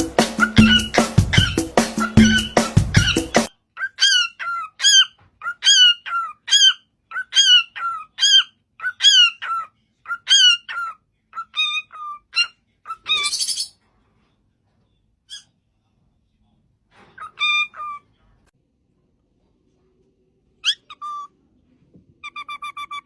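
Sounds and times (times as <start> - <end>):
parrot squawking: 0.0 - 13.8, 17.2 - 18.1, 20.6 - 21.4, 22.2 - 23.0
parrot screech: 11.5 - 13.8.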